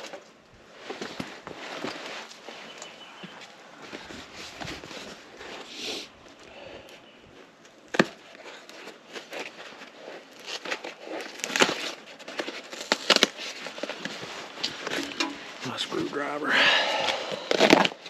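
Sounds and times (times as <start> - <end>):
cardboard box being opened: 7.9 - 15.7, 17.0 - 18.0
tapping and scraping: 8.7 - 15.6.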